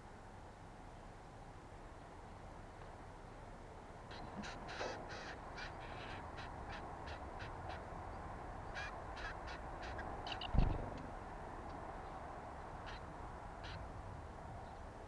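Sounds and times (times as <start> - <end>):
low thump: 10.5 - 11.1.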